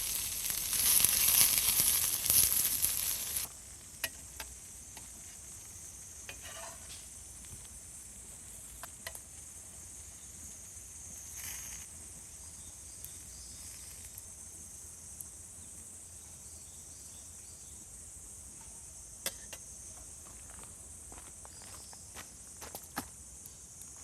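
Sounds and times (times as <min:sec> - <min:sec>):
insects chorus: 0:00.0 - 0:24.0.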